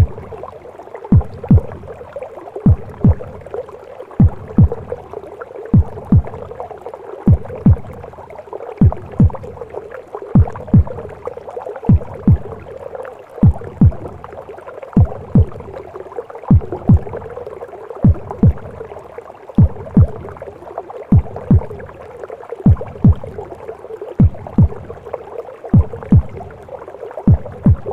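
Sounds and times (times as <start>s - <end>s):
heartbeat thuds: 0.0s - 0.4s, 1.1s - 2.0s, 2.6s - 3.5s, 4.2s - 5.0s, 5.7s - 6.6s, 7.3s - 8.1s, 8.8s - 9.6s, 10.4s - 11.1s, 11.9s - 12.7s, 13.4s - 14.2s, 15.0s - 15.8s, 16.5s - 17.3s, 18.0s - 18.8s, 19.6s - 20.4s, 21.1s - 22.0s, 22.6s - 23.5s, 24.2s - 25.0s, 25.7s - 26.6s, 27.3s - 27.9s
muffled whooshing womb noise: 0.0s - 27.9s.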